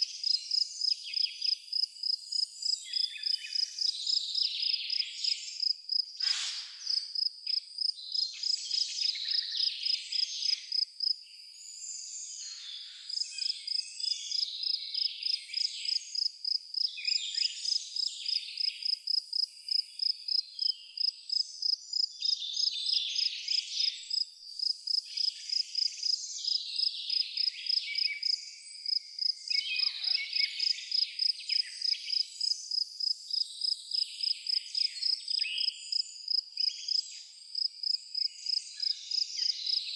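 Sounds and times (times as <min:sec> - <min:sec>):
cricket chirping: 0:00.0 - 0:39.8
birds singing: 0:08.0 - 0:18.9, 0:19.8 - 0:37.4, 0:38.1 - 0:39.9.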